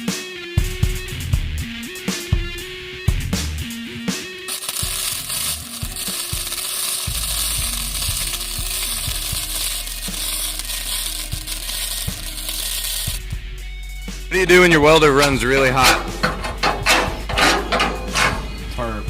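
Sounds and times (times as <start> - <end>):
welding arc crackling: 4.4 - 13.4, 14.3 - 18.8.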